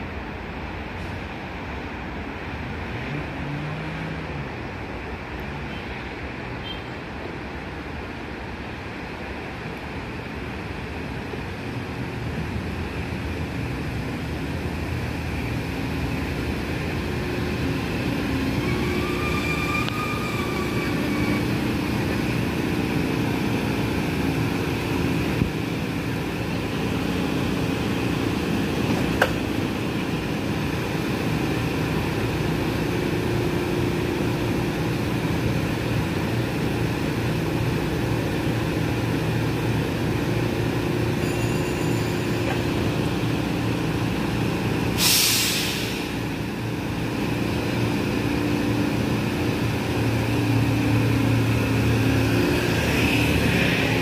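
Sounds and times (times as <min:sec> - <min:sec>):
train rumbling: 0:00.0 - 0:54.0
high squeal: 0:18.1 - 0:22.1, 0:41.2 - 0:42.7.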